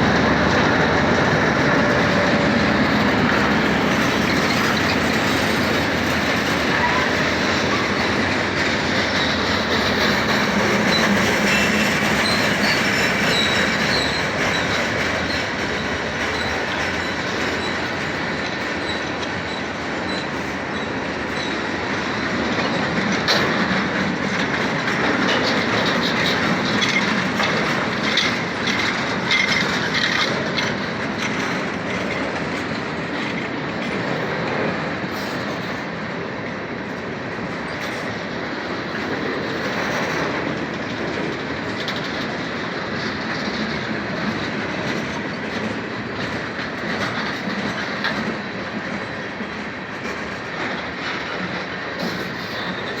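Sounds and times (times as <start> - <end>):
train wheels rumbling on rail: 0.0 - 53.0
faint wheel squeal: 6.5 - 8.1.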